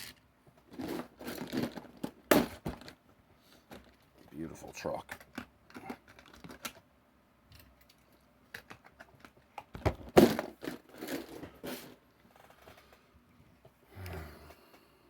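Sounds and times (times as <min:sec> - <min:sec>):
toy trucks clattering: 0:00.0 - 0:03.0, 0:07.6 - 0:12.9.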